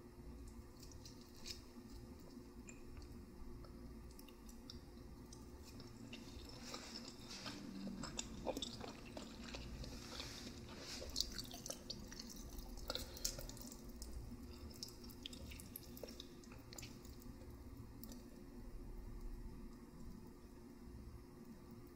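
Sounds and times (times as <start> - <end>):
chewing noodles: 3.6 - 18.3.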